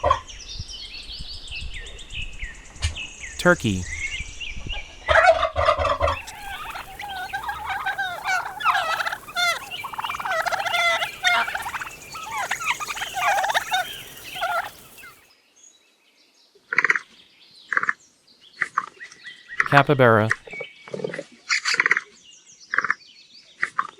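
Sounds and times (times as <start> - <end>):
turkeys gobbling: 5.9 - 15.2.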